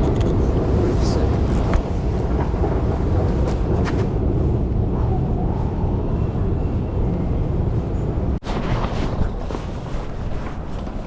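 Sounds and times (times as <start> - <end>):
rumble of passing vehicles: 0.0 - 8.4.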